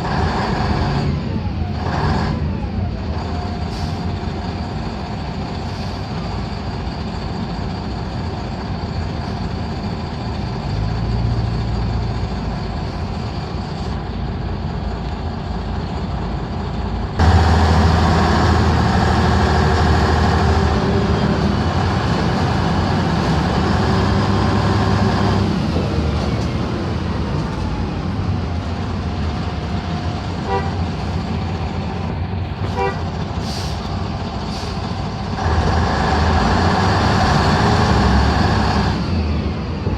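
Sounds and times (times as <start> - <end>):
diesel bus engine running: 0.0 - 39.9.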